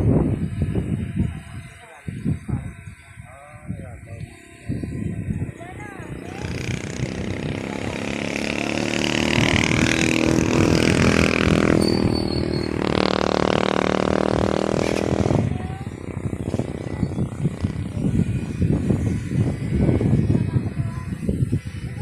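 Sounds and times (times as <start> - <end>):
vehicle engine running: 5.3 - 22.0.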